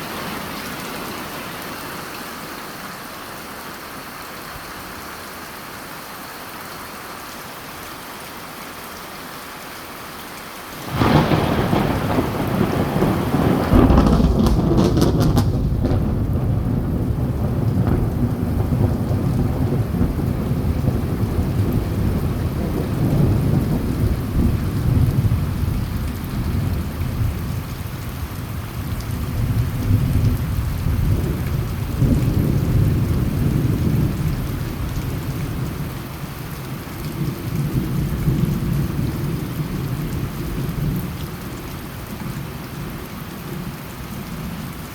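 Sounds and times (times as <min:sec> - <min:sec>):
steady rain: 0:00.0 - 0:44.9
thunder rumbling: 0:10.8 - 0:36.0.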